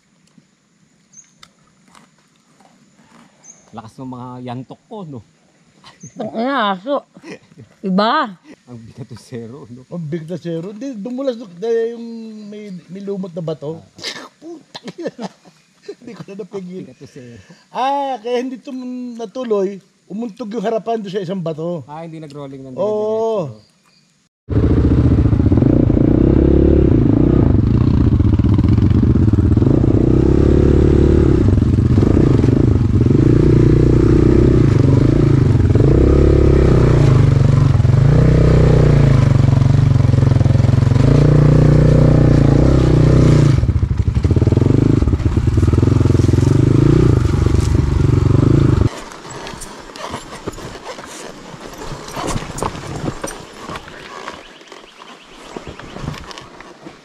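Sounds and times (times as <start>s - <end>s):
dirt bike engine revving: 24.5s - 50.3s.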